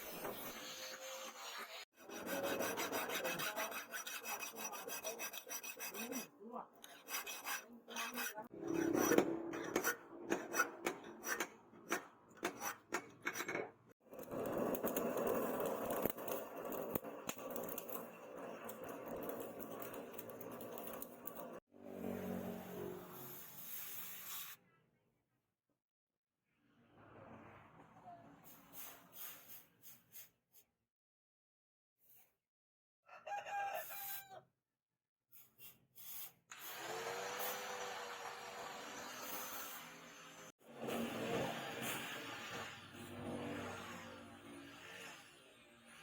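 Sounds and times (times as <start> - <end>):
file rasping back and forth: 0.0 - 21.6.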